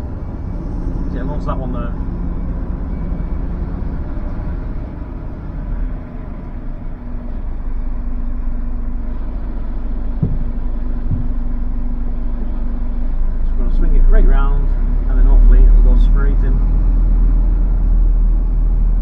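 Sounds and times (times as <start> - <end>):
lorry diesel engine running: 0.0 - 19.0
short low knocks: 9.2 - 12.0.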